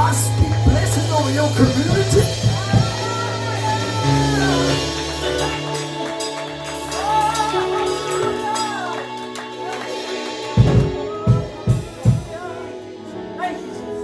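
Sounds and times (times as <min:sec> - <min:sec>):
heavy drum hits: 0:00.0 - 0:05.4, 0:10.6 - 0:12.4
held keyboard chords: 0:00.0 - 0:14.0.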